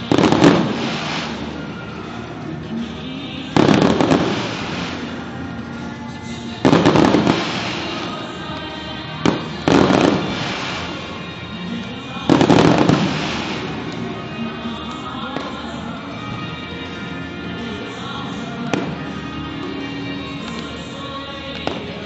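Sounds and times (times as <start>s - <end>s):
fireworks booming: 0.0s - 15.6s
music: 0.0s - 22.0s.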